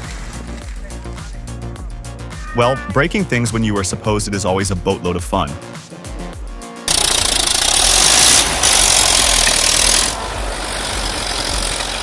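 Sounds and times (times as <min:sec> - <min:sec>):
heavy machine engine running: 0:06.9 - 0:12.0.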